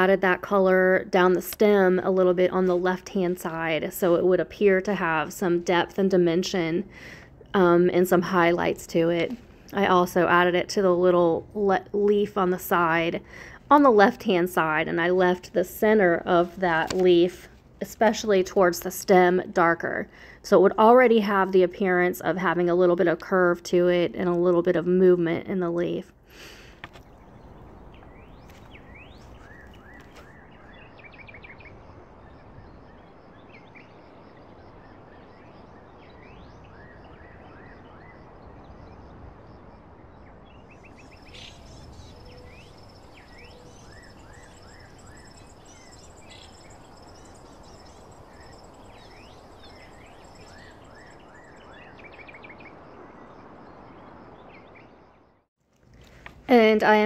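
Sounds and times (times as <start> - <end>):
small birds chirping: 26.4 - 31.8, 40.2 - 55.0.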